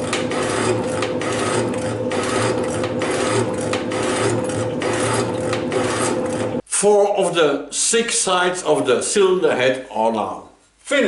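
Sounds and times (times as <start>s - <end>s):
metal shaper cutting steel: 0.0s - 6.6s.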